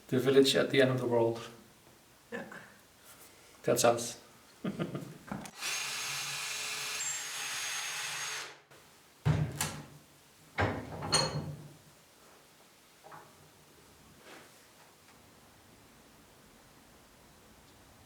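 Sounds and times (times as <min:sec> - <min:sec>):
small power tool running: 0:05.5 - 0:08.6.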